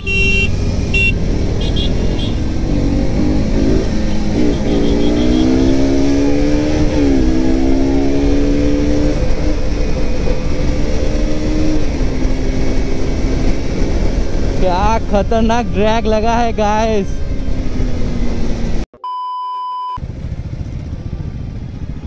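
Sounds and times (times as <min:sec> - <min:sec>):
motorcycle engine accelerating: 0:00.0 - 0:15.8, 0:16.6 - 0:18.8, 0:20.0 - 0:22.0.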